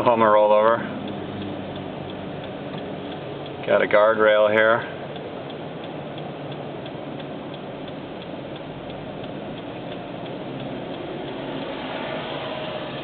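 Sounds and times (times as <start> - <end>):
road noise inside vehicle: 0.0 - 13.0
turn signal ticking: 0.0 - 13.0.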